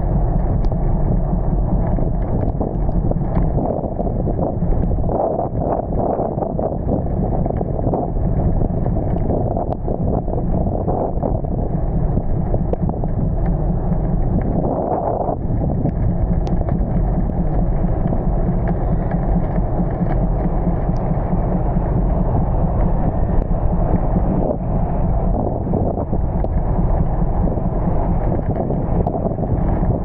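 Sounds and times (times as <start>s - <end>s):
wind buffeting microphone: 0.0s - 30.0s
faint raindrop ticks: 0.2s - 3.5s, 12.1s - 14.6s, 15.6s - 22.2s.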